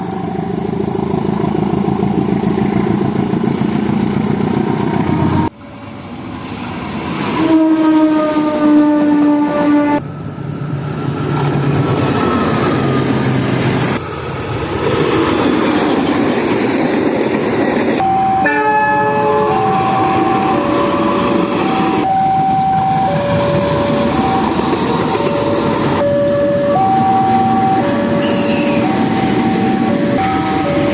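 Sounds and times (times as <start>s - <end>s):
train passing: 0.0s - 30.9s
locomotive horn chord: 7.4s - 10.0s, 18.2s - 21.2s, 26.6s - 29.1s
alternating two-pitch horn tones: 18.0s - 24.6s, 26.0s - 30.9s.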